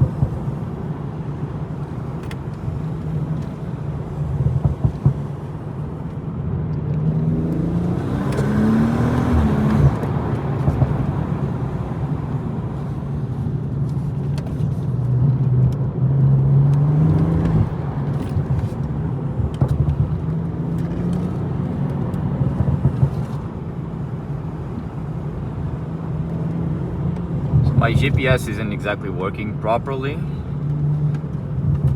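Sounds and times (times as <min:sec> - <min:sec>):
car engine revving: 0:06.8 - 0:13.1.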